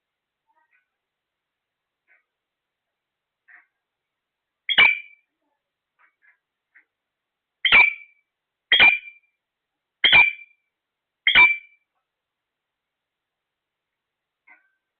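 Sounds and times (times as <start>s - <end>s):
parrot shrill calls: 4.7s - 5.2s, 7.6s - 9.2s, 10.0s - 10.6s, 11.3s - 11.8s.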